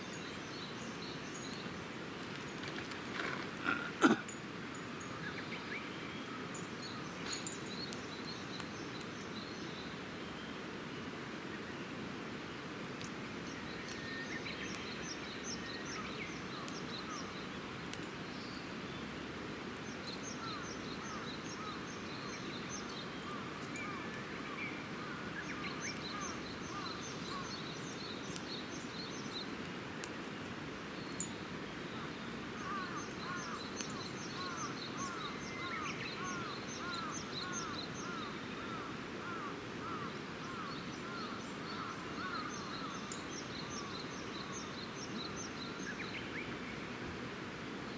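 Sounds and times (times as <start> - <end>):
campfire crackling: 0.1 - 5.6, 6.4 - 47.9
fire popping: 2.2 - 4.2
birds calling: 20.0 - 29.5, 31.0 - 46.8.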